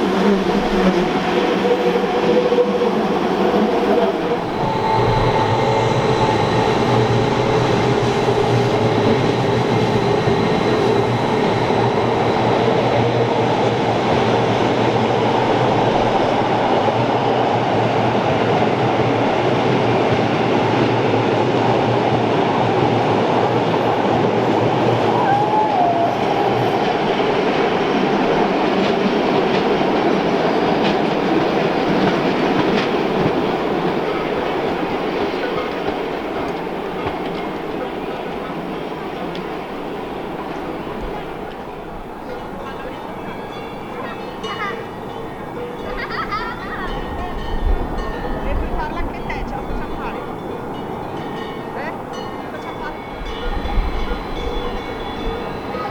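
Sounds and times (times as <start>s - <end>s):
train wheels on track: 0.0s - 55.9s.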